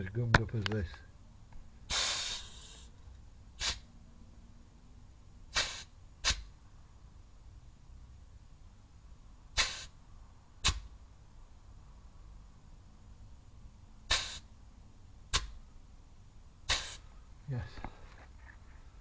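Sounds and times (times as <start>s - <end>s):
grease gun air bursts: 1.9s - 2.9s, 3.6s - 3.9s, 5.5s - 6.5s, 9.5s - 10.0s, 10.6s - 10.9s, 14.0s - 14.5s, 16.6s - 17.1s.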